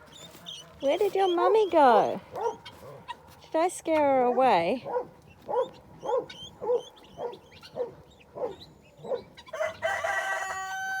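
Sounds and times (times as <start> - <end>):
guinea fowl calling: 5.6 - 11.0.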